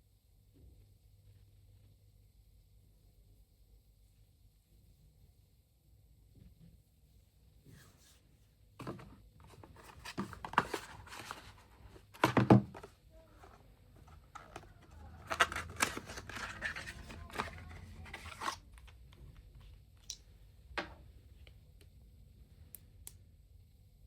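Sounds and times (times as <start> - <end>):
rustling: 7.7 - 18.9.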